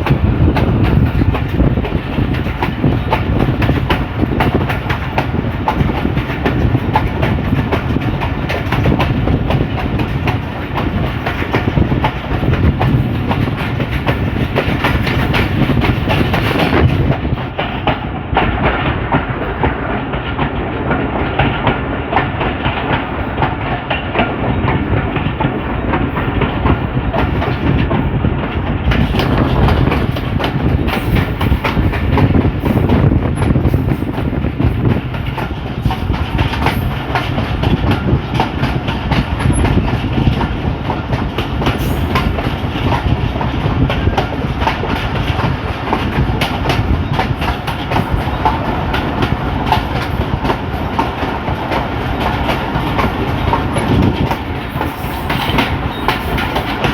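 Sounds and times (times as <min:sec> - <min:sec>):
train rumbling: 0:00.0 - 0:56.9
wheels clattering over rail joints: 0:00.0 - 0:56.9.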